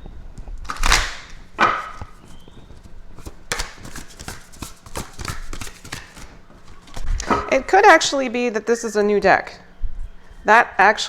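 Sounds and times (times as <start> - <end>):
cards being shuffled: 0.6 - 7.1.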